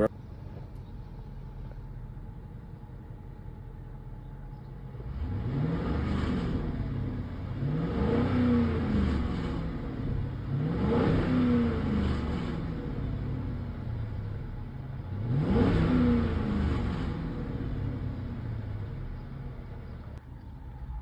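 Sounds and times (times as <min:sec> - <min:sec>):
car engine revving: 0:04.8 - 0:21.0.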